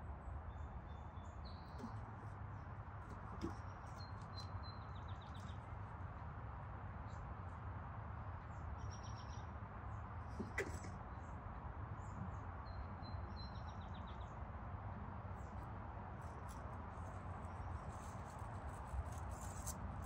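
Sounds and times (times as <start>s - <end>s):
steady low background noise: 0.0s - 20.0s
small birds chirping: 0.5s - 6.2s, 8.4s - 14.5s.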